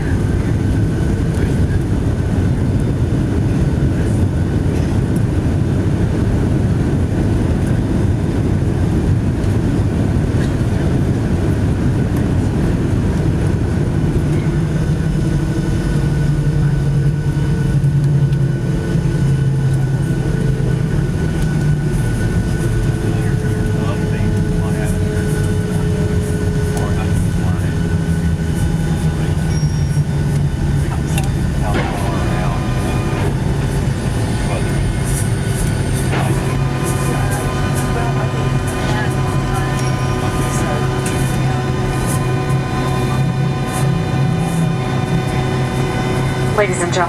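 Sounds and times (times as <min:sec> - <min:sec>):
jet engine cabin noise: 0:00.0 - 0:47.0
low drone: 0:00.0 - 0:47.0
thin constant whine: 0:14.0 - 0:47.0.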